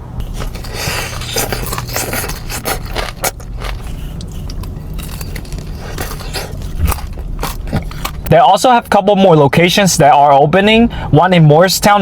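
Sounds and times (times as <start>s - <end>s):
utensil scraping food container: 0.2s - 8.4s.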